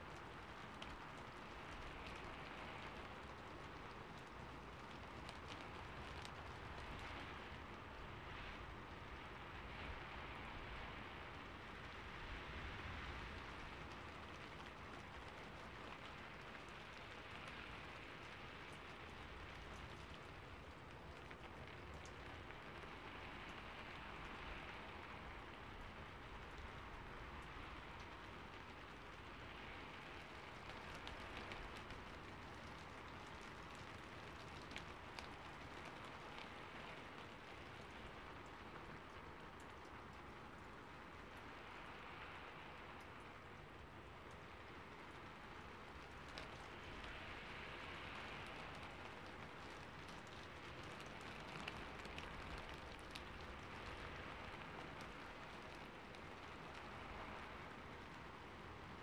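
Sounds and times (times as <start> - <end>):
rain on a rooftop: 0.0 - 59.0
water drips ticking: 13.0 - 59.0.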